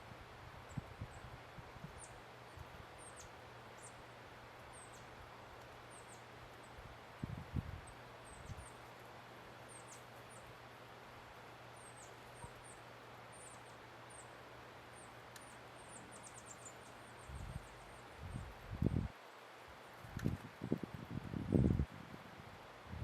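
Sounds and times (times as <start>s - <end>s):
songbirds chip calls: 0.6s - 10.7s, 11.3s - 19.1s.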